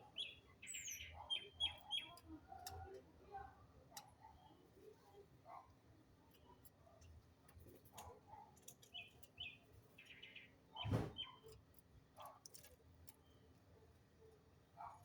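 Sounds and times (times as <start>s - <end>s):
thump: 10.8s - 11.2s.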